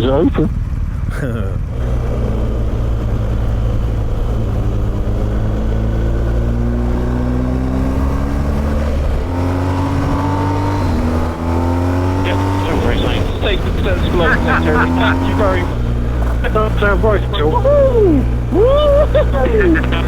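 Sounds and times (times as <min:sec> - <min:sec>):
motorcycle engine accelerating: 0:00.0 - 0:20.0
steady rush of noise: 0:12.2 - 0:20.0.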